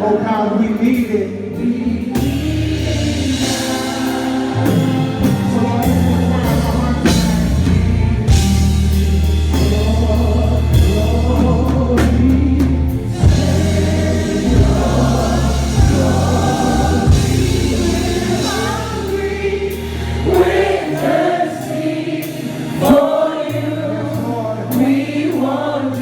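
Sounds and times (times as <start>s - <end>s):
choir singing: 0.8s - 26.0s
sustained bass notes: 1.0s - 23.0s
drum and cymbal hits: 2.1s - 21.6s.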